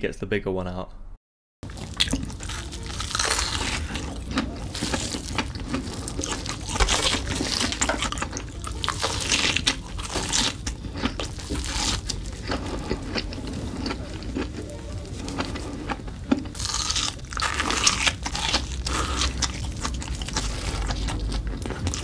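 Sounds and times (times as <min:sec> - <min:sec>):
biting and chewing sausage: 0:01.6 - 0:22.0.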